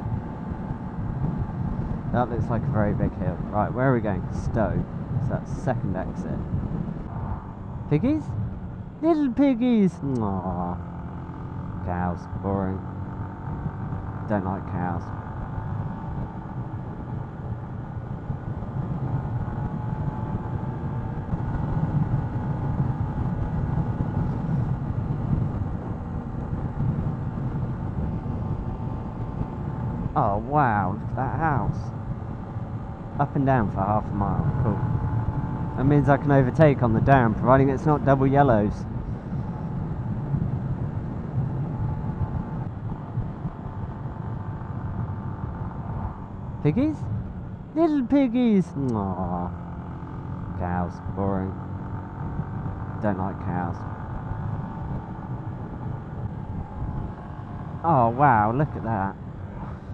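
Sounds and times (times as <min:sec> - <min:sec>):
motorcycle engine running: 0:00.0 - 0:59.9
road rumble: 0:00.0 - 0:59.9
wind: 0:00.0 - 0:59.9
wind noise on microphone: 0:15.7 - 0:30.2.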